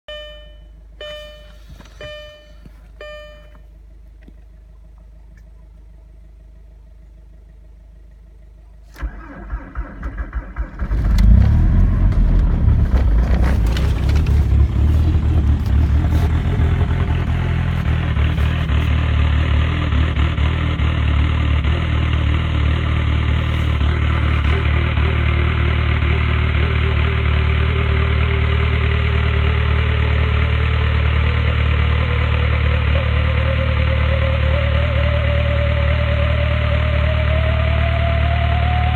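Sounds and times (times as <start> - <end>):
short electronic chimes: 0.1 - 3.6
turbo whistle: 0.1 - 3.6
diesel engine starting and idling: 0.1 - 38.9.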